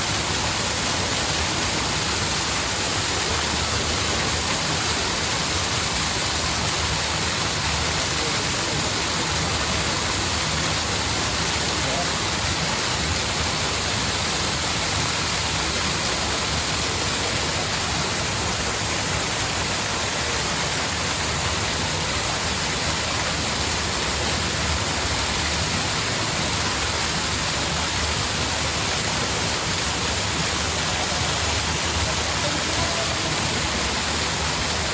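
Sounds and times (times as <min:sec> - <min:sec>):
cascading water rushing: 0:00.0 - 0:34.9.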